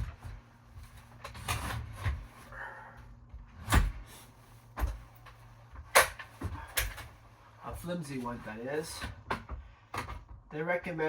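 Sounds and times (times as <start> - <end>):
wooden ladder knocks and clunks: 7.8 - 10.5.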